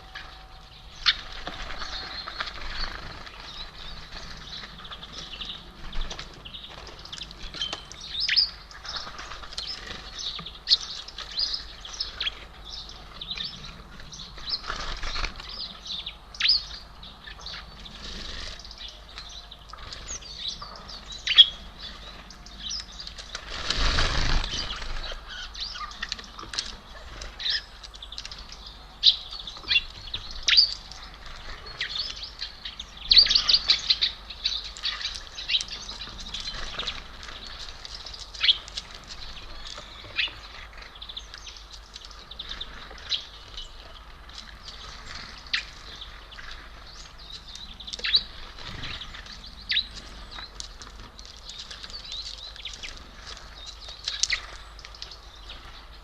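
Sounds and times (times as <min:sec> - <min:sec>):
songbirds chirping: 0:00.0 - 0:56.0
birds fluttering wings: 0:01.0 - 0:07.9, 0:13.7 - 0:15.6, 0:17.9 - 0:18.8, 0:23.0 - 0:25.4.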